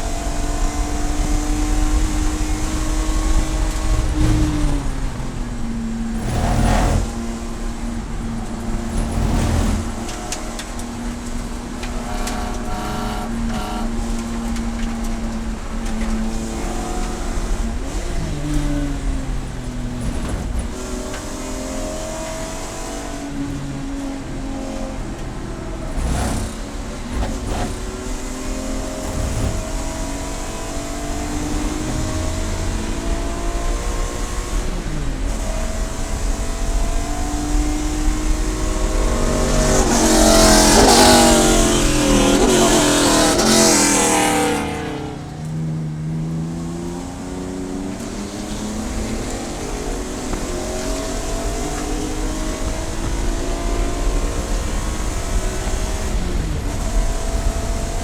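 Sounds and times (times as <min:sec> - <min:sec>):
loud rushes of noise: 0:00.0 - 0:22.6, 0:25.4 - 0:45.9
race car engine: 0:00.0 - 0:58.0.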